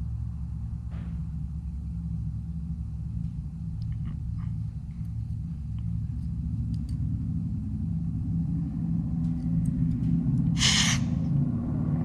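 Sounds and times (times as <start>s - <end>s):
low rumble and hum: 0.0s - 12.0s
hiss of air: 10.6s - 11.3s.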